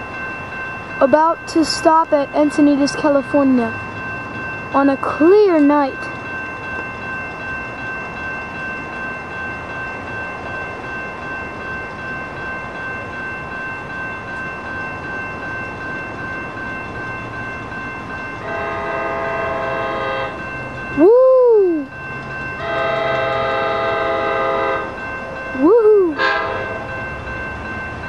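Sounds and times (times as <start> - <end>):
high ringing tones: 0.0 - 28.0
train horn chord: 18.4 - 20.4, 22.6 - 24.9, 26.2 - 26.9.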